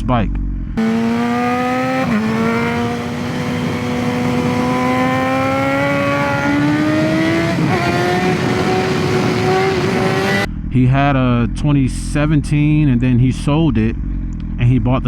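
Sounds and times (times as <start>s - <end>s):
motorcycle engine accelerating: 0.8s - 10.5s.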